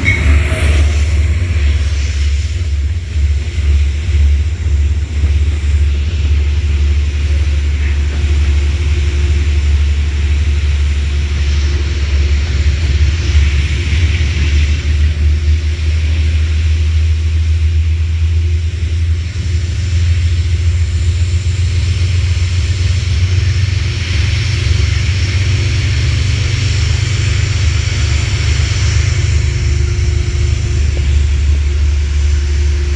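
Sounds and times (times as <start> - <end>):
rushing hiss: 0.0 - 16.9
train wheels rumbling on rails: 0.0 - 32.9.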